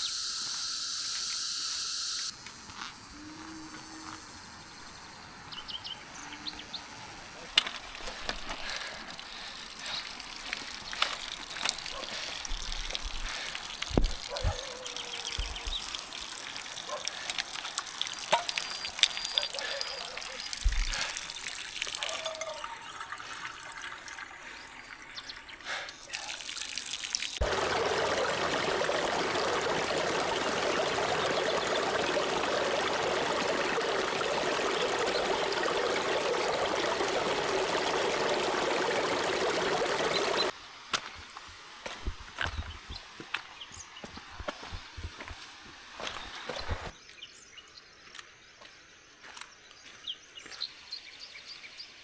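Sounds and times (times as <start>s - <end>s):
stream trickling and splashing: 3.6s - 48.3s, 49.2s - 52.0s
faint high call: 22.0s - 23.2s.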